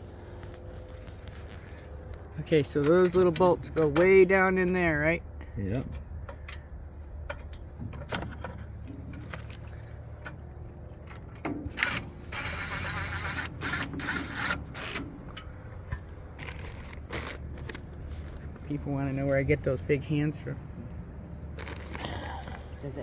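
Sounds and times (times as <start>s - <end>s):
metal parts clicking and knocking: 6.2s - 18.7s.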